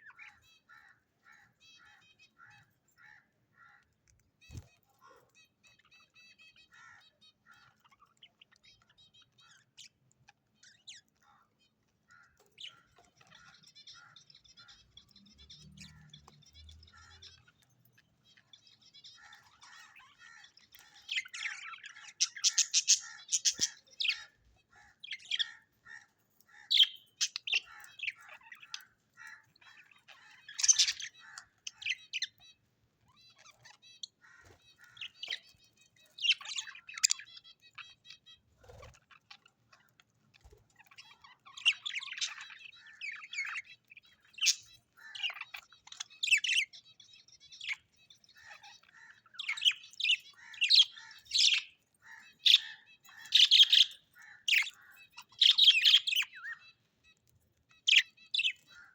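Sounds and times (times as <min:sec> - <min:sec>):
birds chirping: 0:00.0 - 0:58.9.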